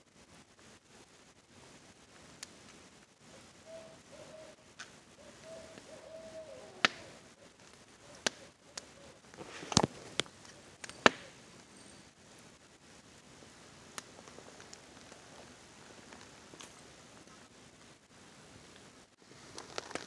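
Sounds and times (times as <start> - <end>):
campfire crackling: 0.0 - 20.0
rain hiss: 0.0 - 20.0
owl hooting: 3.2 - 9.4.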